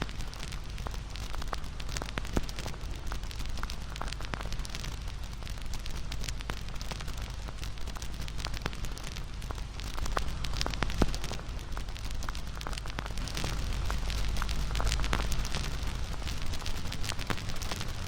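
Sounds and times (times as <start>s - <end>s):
low rush of flames: 0.0s - 18.0s
wood fire crackling and popping: 0.0s - 18.0s.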